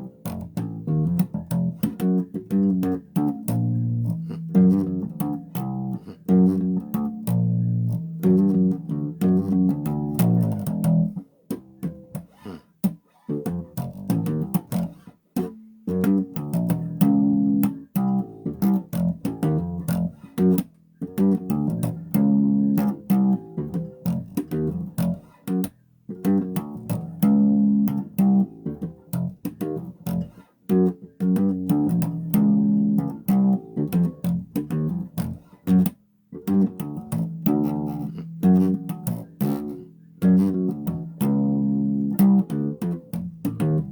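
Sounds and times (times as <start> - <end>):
bass guitar plucked notes: 0.0 - 12.7, 13.3 - 43.9.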